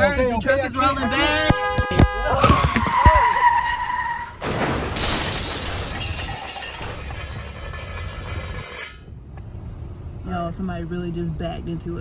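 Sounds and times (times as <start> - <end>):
truck hitting car: 1.5 - 3.4, 4.4 - 9.1
crunch of breaking car parts: 4.4 - 9.0.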